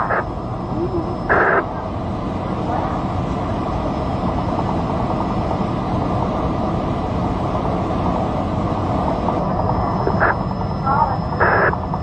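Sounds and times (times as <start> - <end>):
faint whine: 0.0 - 12.0
low engine drone: 0.0 - 12.0.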